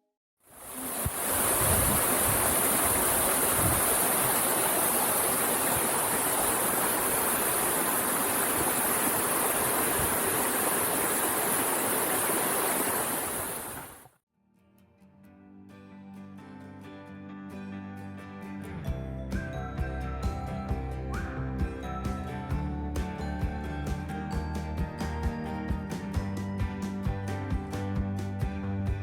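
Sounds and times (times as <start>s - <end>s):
waterfall rushing: 0.5s - 14.1s.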